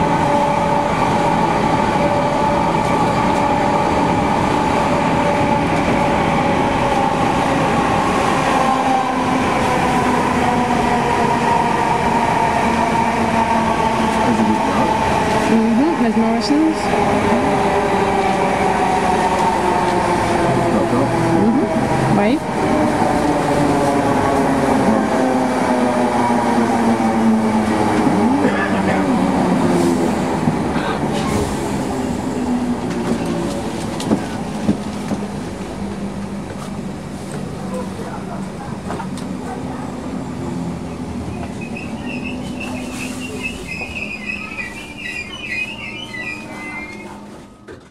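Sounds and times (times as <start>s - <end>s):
train rumble inside carriage: 0.0s - 47.9s
brake wheel squeal: 41.6s - 47.2s.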